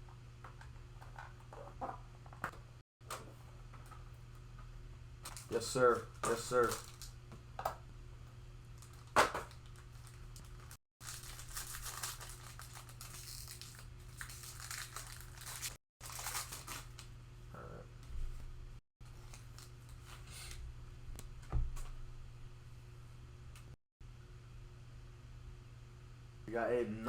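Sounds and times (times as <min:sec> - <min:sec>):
card pack wrappers crinkling: 0:06.3 - 0:07.1, 0:08.8 - 0:17.1.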